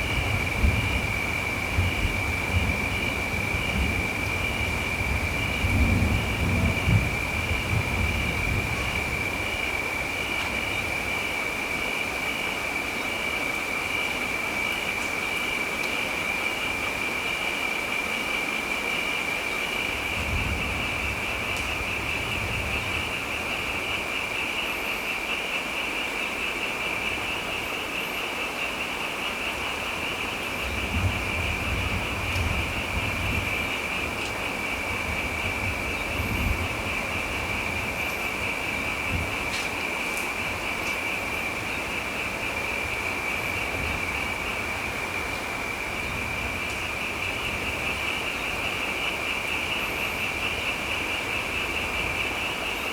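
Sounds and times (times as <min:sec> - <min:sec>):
distant thunder rumbles: 0:00.0 - 0:11.4, 0:29.6 - 0:52.6
steady rain: 0:00.0 - 0:52.9.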